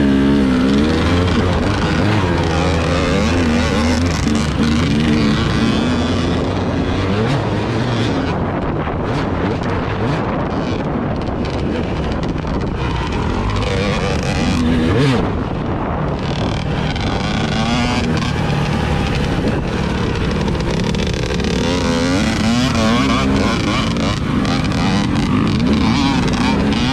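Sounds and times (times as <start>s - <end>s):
vehicle engine running: 0.0s - 26.9s
wind buffeting microphone: 0.0s - 26.9s.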